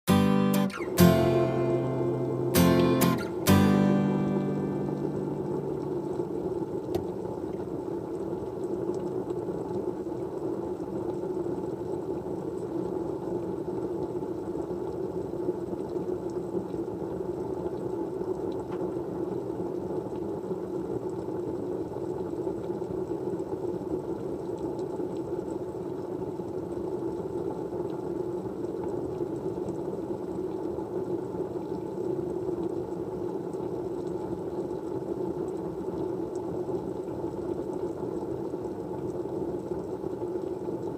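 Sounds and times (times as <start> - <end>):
low rushing white noise: 0.1 - 8.0.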